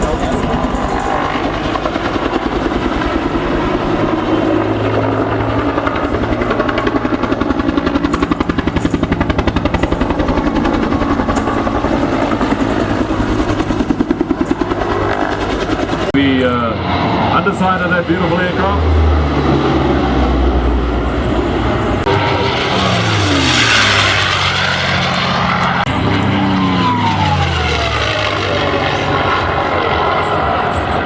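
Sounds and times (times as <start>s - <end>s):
aircraft engine and blades throbbing: 0.0s - 31.0s.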